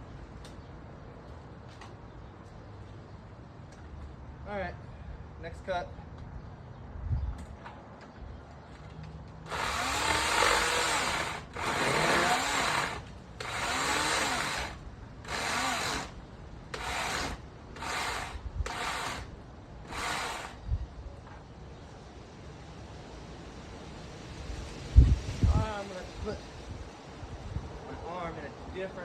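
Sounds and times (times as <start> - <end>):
electric chainsaw cutting branch: 9.4 - 16.2, 16.8 - 20.6.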